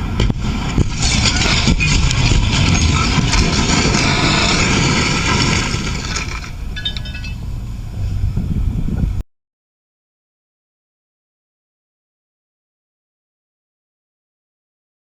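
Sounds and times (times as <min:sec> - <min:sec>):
car and road noise: 0:00.0 - 0:09.2.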